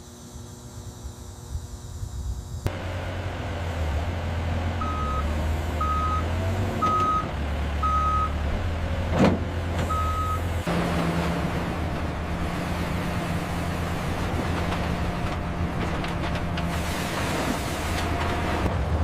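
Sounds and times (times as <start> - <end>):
heavy truck engine running: 2.6 - 19.0
backup alarm beeping: 4.8 - 8.4, 9.9 - 10.5.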